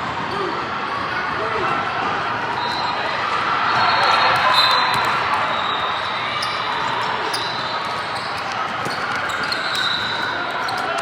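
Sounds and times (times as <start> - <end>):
crowd chatter: 0.0 - 11.0
basketball bouncing on court: 3.7 - 11.0
shoe squeaks: 3.8 - 11.0.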